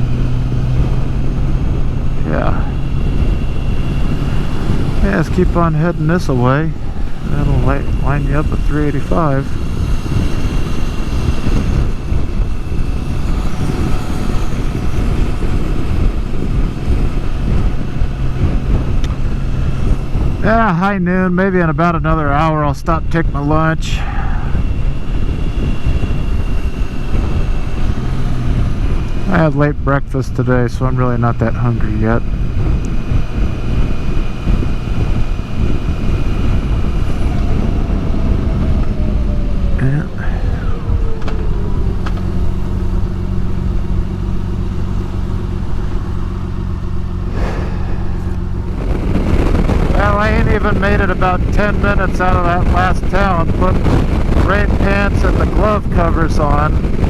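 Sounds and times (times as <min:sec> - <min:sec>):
motorcycle engine drone: 0:00.0 - 0:57.0
wind rush on microphone: 0:00.0 - 0:57.0.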